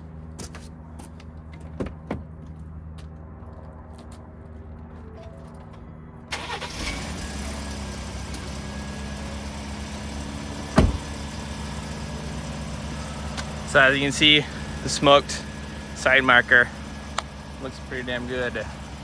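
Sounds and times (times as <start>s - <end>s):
truck engine starting and idling: 6.2s - 19.0s
sharp thump: 10.8s - 11.1s.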